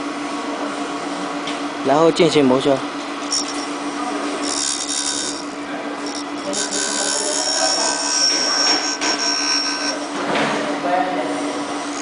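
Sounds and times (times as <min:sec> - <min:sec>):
grinder motor humming: 0:02.8 - 0:10.3, 0:11.3 - 0:12.0
grinding wheel hiss: 0:03.2 - 0:03.8, 0:04.4 - 0:10.1, 0:11.5 - 0:12.0
high whine: 0:03.2 - 0:03.8.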